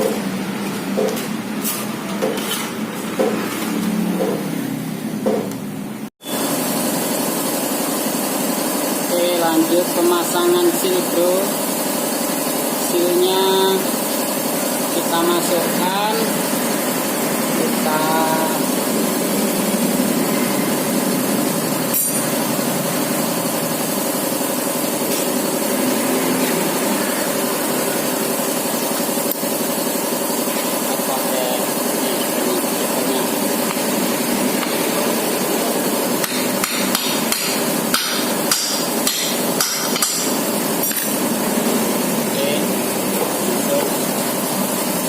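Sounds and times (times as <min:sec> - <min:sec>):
hammer tapping: 0:00.9 - 0:01.2, 0:36.2 - 0:41.1.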